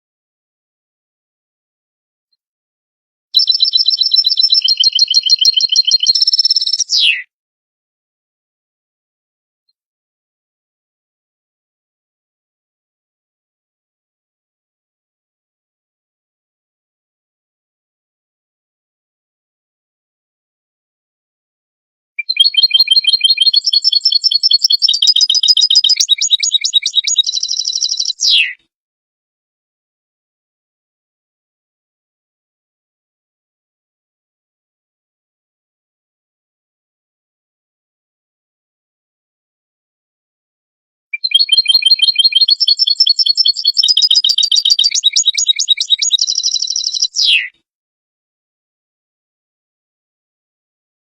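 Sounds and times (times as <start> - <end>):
goldfinch twittering song: 3.4 - 7.2, 22.2 - 28.5, 41.2 - 47.5.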